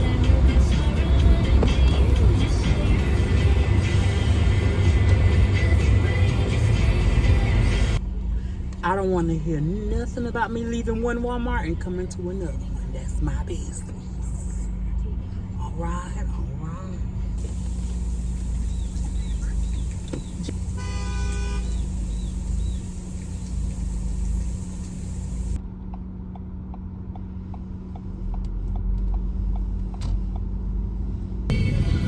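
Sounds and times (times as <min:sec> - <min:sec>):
car engine and road rumble: 0:00.0 - 0:32.0
car horn: 0:17.4 - 0:25.6.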